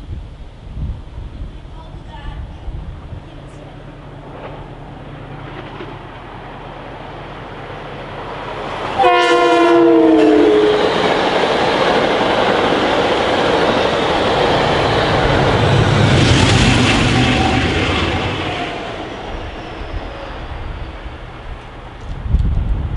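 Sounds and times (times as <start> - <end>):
passing train rumble: 0.0 - 22.9
train horn blast: 9.0 - 11.1, 15.8 - 19.0.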